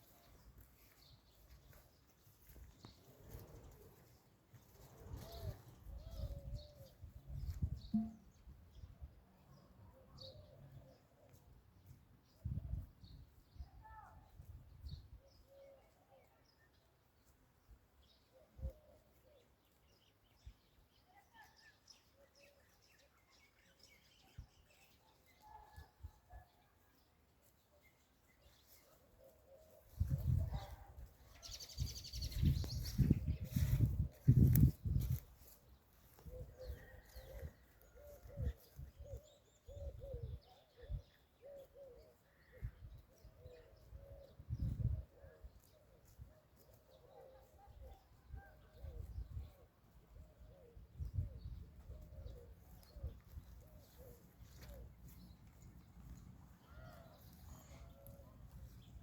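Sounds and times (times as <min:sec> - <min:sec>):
faint bird chirps and song: 0:00.0 - 0:59.0
pigeons cooing: 0:36.3 - 0:42.8, 0:50.4 - 0:55.2.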